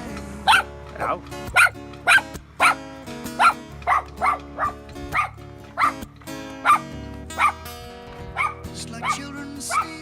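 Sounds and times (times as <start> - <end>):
background music: 0.0 - 10.0
dog barking: 0.4 - 0.7, 1.5 - 2.8, 3.4 - 7.7, 8.3 - 10.0.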